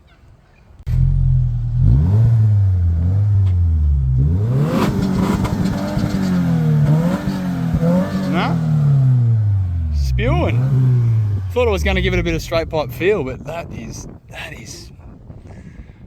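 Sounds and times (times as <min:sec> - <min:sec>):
car engine starting and revving: 0:00.9 - 0:13.5.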